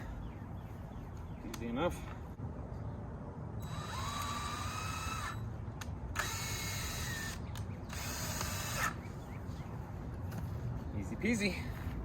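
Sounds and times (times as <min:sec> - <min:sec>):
power drill whining: 0:03.6 - 0:05.4, 0:06.2 - 0:09.0.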